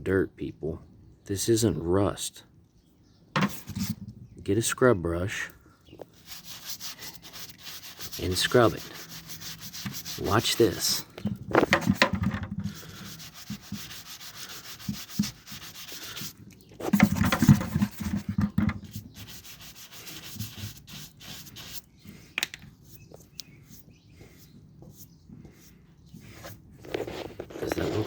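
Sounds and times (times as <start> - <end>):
scrub brush scrubbing metal pipe: 6.1 - 22.0.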